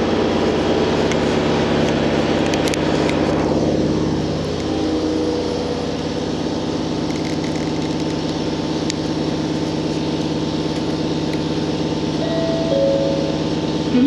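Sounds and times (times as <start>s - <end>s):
railcar engine hum: 0.0s - 14.0s
short steady tone: 12.2s - 14.0s.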